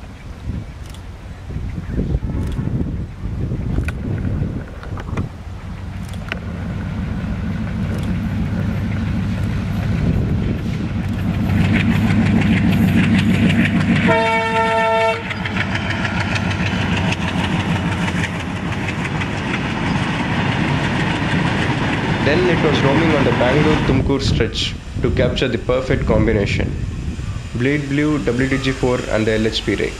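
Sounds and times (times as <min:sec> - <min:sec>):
train rumbling past: 0:00.0 - 0:29.9
locomotive horn blast: 0:14.0 - 0:15.4.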